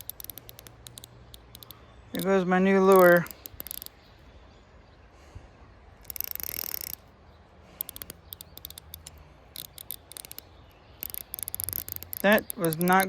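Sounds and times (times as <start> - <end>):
fishing reel clicking: 0.0 - 4.0, 6.0 - 7.1, 7.8 - 13.0.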